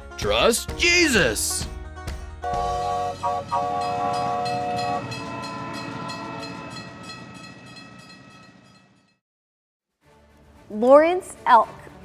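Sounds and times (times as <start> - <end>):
train whistle blast: 2.4 - 6.3
clickety-clack of moving train: 2.4 - 8.8.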